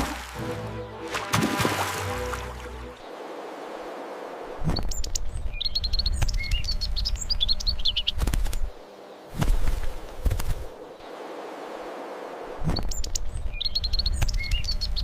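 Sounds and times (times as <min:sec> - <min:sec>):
small bird chirping: 0:04.7 - 0:09.4, 0:12.7 - 0:15.0.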